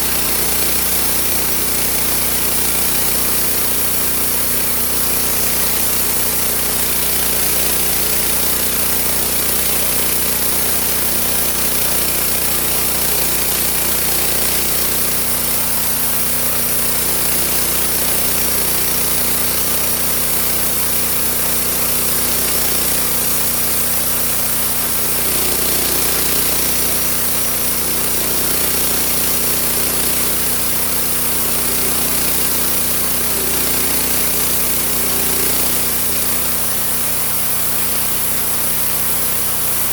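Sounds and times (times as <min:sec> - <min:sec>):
blade sawing through log: 0:00.0 - 0:39.9
sawmill drive droning: 0:24.6 - 0:36.8.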